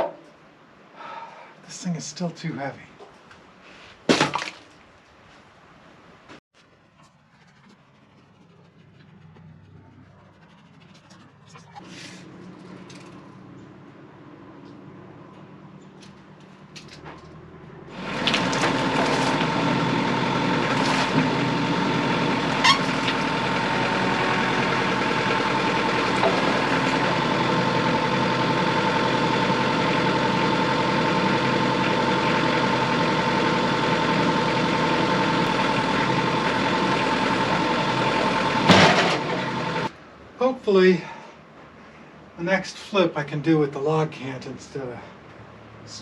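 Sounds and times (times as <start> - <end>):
heavy equipment engine running: 7.1 - 40.3.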